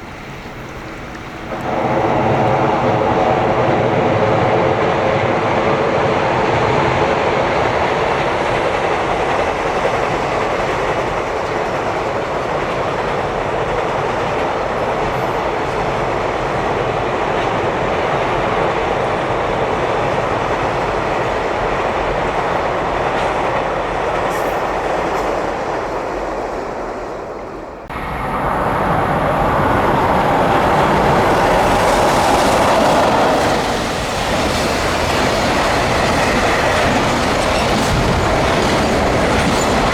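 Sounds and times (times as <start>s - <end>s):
freight train passing: 0.0s - 39.9s
wheels clattering over rail joints: 27.7s - 39.9s.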